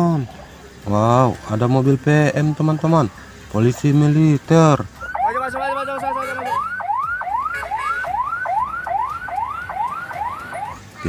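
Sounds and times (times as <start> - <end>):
toy siren whooping: 5.0 - 10.8.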